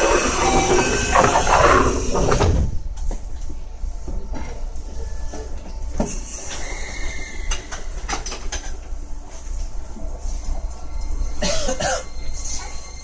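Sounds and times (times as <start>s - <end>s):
wheel squeal: 0.0s - 2.5s, 6.3s - 8.0s
wheels clicking over rails: 0.0s - 2.7s
train rumbling: 0.0s - 5.9s.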